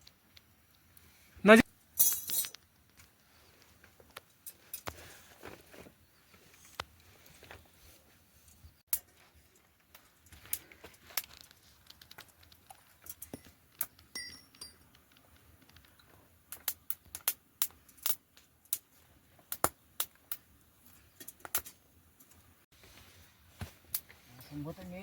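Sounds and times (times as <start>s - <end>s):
sharp irregular clicks and taps: 11.2s - 14.2s, 14.9s - 18.8s.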